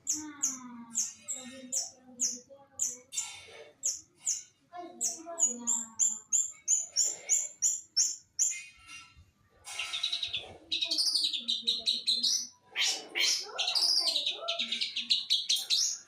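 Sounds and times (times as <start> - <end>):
bird warbling song: 9.7 - 16.0.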